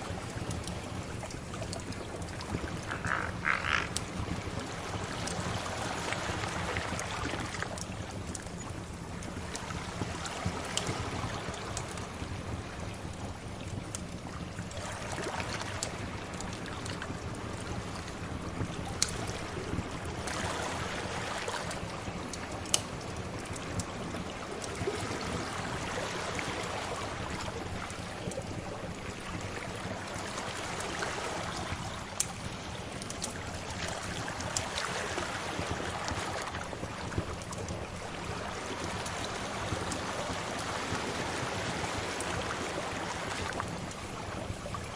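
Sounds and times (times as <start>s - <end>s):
wood fire popping and crackling: 0.0s - 5.6s, 21.4s - 25.3s, 27.3s - 42.8s
sea waves washing in: 0.0s - 13.6s, 14.2s - 44.9s.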